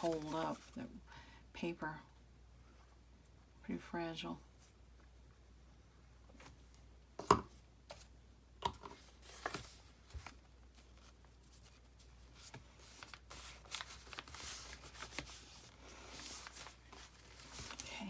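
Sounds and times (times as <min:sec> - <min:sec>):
paper rustling and sliding: 0:00.0 - 0:00.8, 0:08.9 - 0:18.0.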